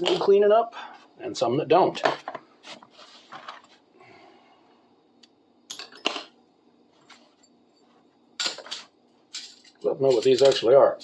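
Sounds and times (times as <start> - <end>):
metal tools clinking: 5.7 - 6.3, 7.1 - 10.9.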